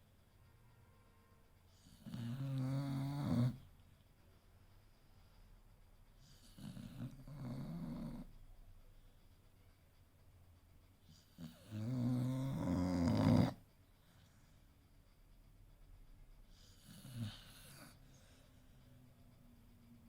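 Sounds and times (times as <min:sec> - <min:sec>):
dog snoring: 0:01.7 - 0:03.8, 0:06.1 - 0:09.1, 0:11.0 - 0:14.6, 0:16.4 - 0:18.8.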